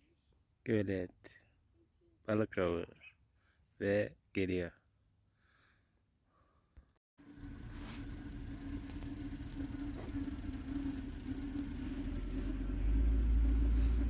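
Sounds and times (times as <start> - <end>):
vehicle engine running: 7.2 - 14.0.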